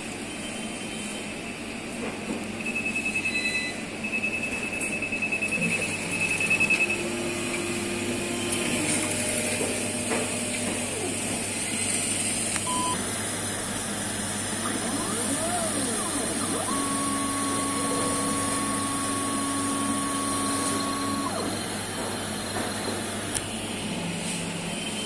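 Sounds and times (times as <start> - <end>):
machine hum: 5.6 - 25.0
motors whirring: 14.5 - 23.6.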